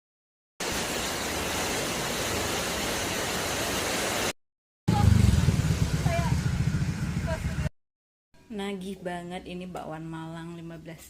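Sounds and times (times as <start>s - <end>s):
heavy rain hissing: 0.6s - 4.3s
low rumble of traffic: 4.9s - 7.7s.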